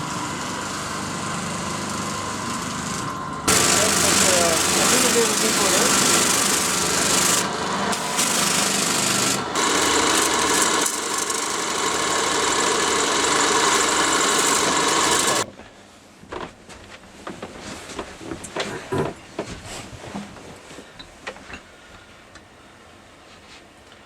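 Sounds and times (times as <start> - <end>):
loud rasping hiss: 3.5 - 15.4.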